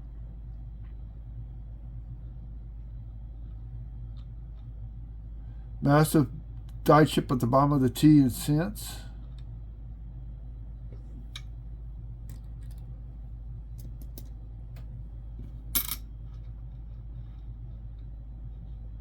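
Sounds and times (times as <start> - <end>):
low hum: 0.0 - 19.0
coin clink: 15.8 - 16.0
coins clicking: 15.8 - 16.0.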